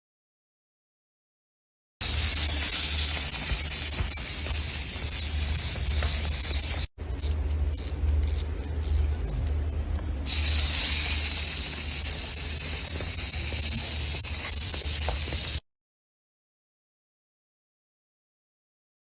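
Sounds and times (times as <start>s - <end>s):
steady hiss: 2.0s - 6.9s, 10.3s - 15.6s
low hum: 2.0s - 15.6s.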